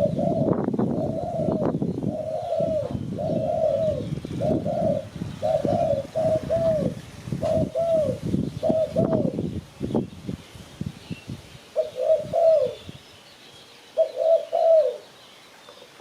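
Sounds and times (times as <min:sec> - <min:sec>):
dove cooing: 0:00.0 - 0:09.5, 0:11.7 - 0:13.0, 0:14.0 - 0:15.1.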